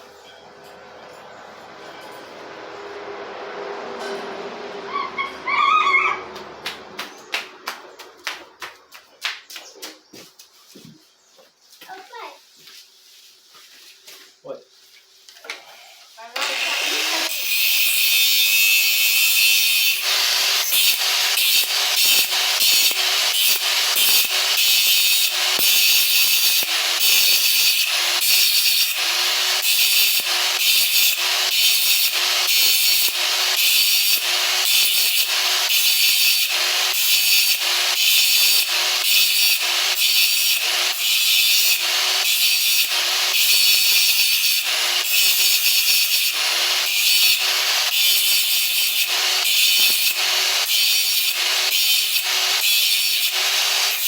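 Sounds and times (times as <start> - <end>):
hand saw scraping strokes: 12.7 - 54.0.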